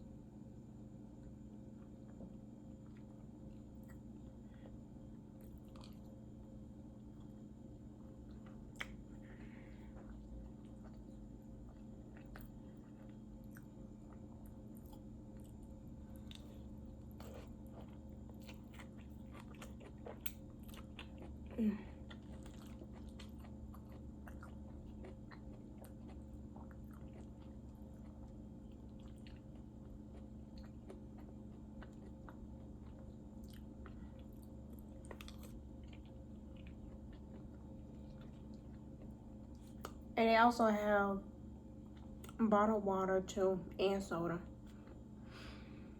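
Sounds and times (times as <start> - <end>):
steady low hum: 0.0 - 45.9
chewing and biting: 2.1 - 6.2, 7.0 - 9.2, 9.8 - 40.1
wet mouth clicks and smacks: 8.7 - 9.0.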